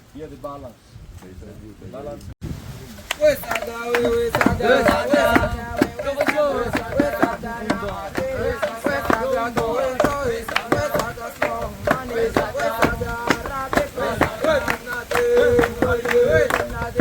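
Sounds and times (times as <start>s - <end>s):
people singing a work song: 3.2s - 17.0s
wooden pestle pounding in mortar: 3.5s - 17.0s.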